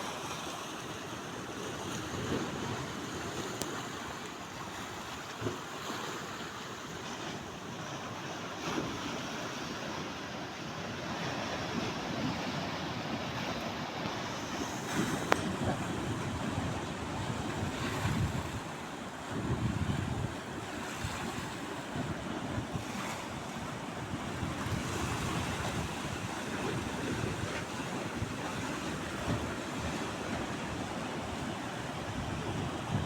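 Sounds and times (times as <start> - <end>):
sea waves washing onto shore: 0.0 - 33.0
wind buffeting microphone: 14.5 - 33.0.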